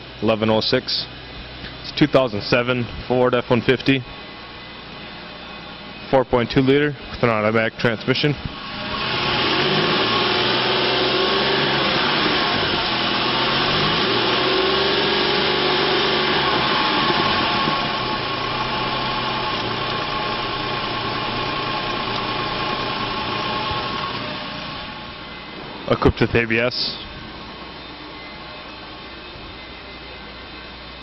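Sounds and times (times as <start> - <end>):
truck engine idling: 7.6 - 31.0.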